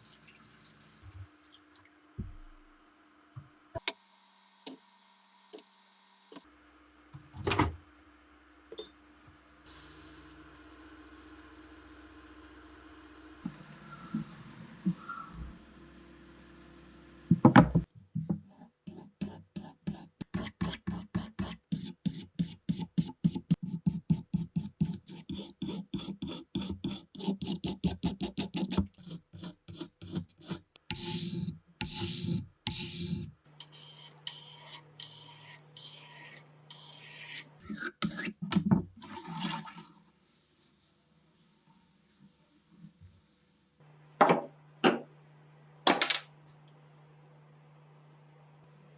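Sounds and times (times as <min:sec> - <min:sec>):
hand tool rasping strokes: 0:25.1 - 0:38.4.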